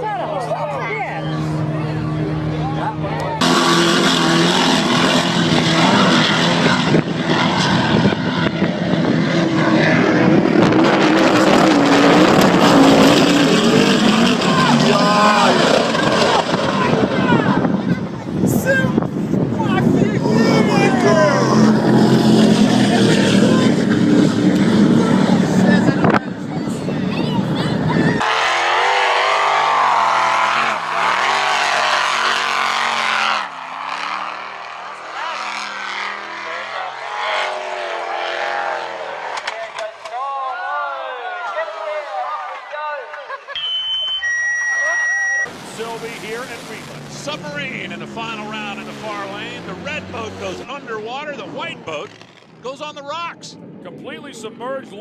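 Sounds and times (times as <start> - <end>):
racing powerboat engines: 0.0 - 40.2, 41.4 - 55.0
steady rush of noise: 45.1 - 55.0.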